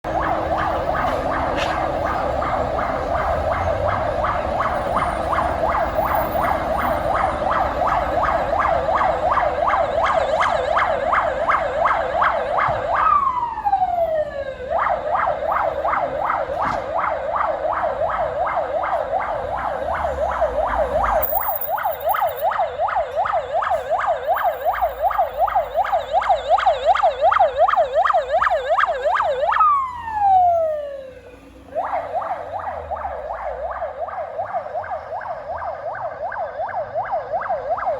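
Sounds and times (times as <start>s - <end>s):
truck engine rumbling: 0.0s - 10.0s
siren warbling: 0.1s - 37.9s.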